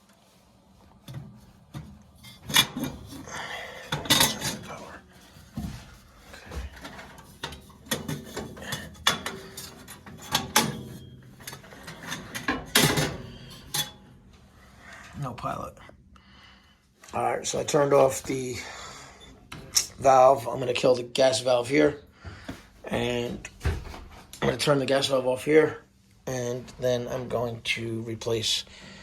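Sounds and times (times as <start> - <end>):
metal clanking and rattling: 1.1 - 14.1.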